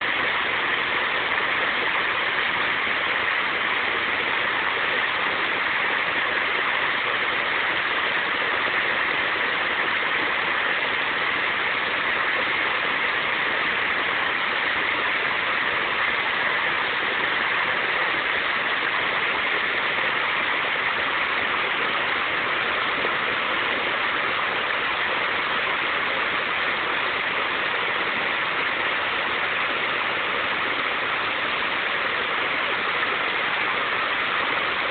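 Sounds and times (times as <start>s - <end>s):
river water rushing: 0.0s - 34.9s.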